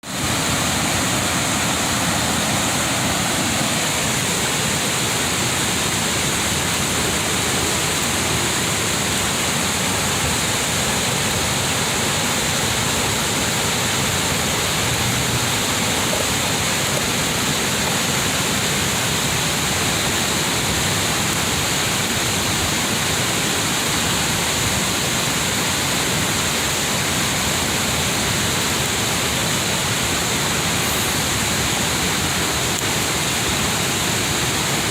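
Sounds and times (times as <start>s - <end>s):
water rushing over cascade: 0.0s - 34.9s.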